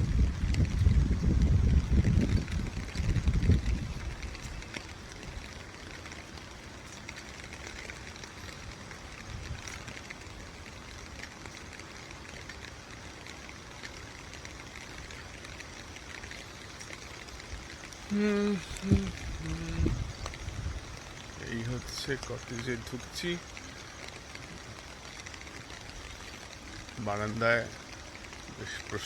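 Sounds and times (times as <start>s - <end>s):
wind buffeting microphone: 0.0s - 29.0s
waterfall rushing: 16.3s - 20.0s.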